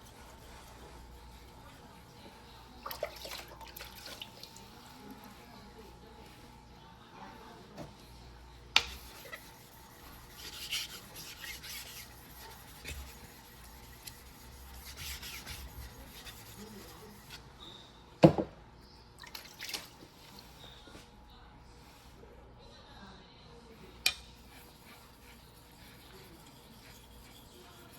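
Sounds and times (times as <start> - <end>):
knife rasping on whetstone: 8.8 - 17.4, 24.4 - 27.9.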